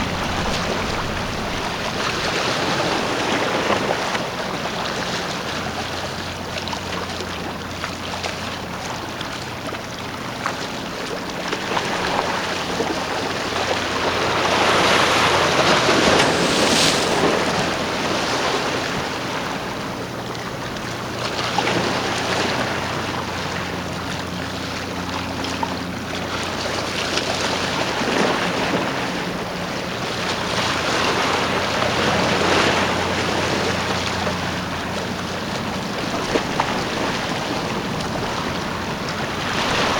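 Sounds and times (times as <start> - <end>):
wind on microphone: 0.0 - 4.1, 11.8 - 19.3
boat engine hum: 0.0 - 39.9
water washing and surging: 0.0 - 39.9.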